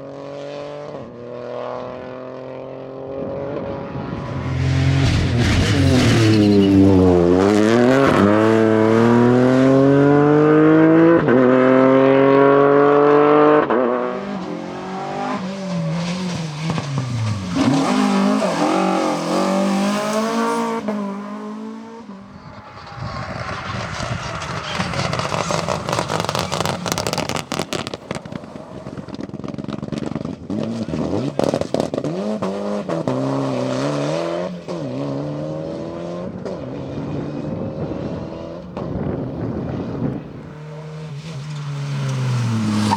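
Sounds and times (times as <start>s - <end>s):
rally car engines revving: 0.0s - 42.9s
engine crackles: 22.2s - 32.0s.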